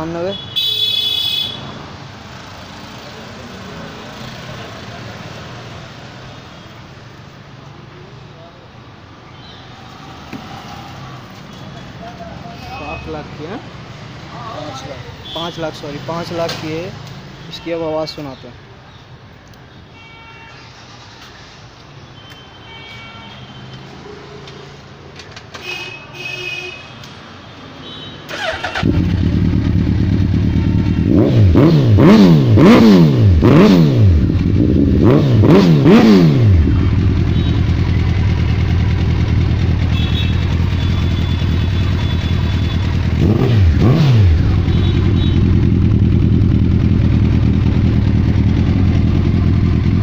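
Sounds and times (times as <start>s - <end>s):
motorcycle engine idling: 28.3s - 31.1s, 36.5s - 50.0s
engine revving: 28.3s - 40.8s, 42.8s - 50.0s
motorcycle engine starting: 28.3s - 50.0s.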